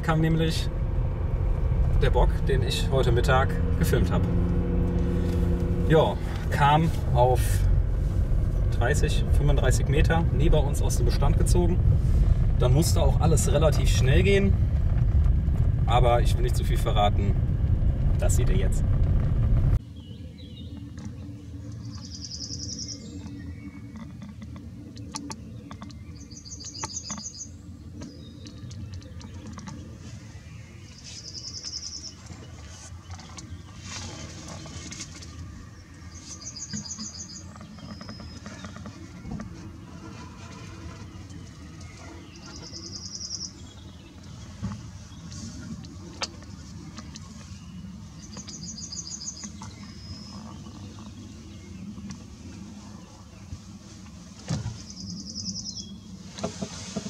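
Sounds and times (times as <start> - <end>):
low rumble: 0.0 - 26.3
low steady rumble: 0.0 - 57.0
bird trilling: 21.8 - 23.7, 36.1 - 39.4, 42.1 - 43.9.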